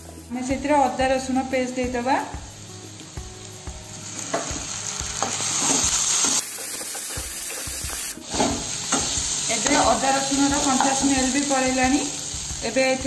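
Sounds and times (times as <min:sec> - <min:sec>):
onions sizzling in hot oil: 0:00.0 - 0:13.0
spatula scraping and tapping pan: 0:04.2 - 0:10.0.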